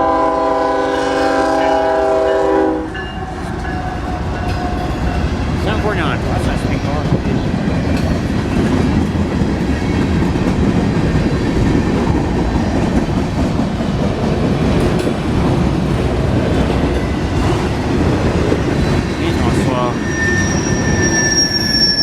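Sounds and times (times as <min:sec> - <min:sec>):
freight train rumbling: 0:00.0 - 0:22.0
wheels clacking over rail joints: 0:03.5 - 0:19.7.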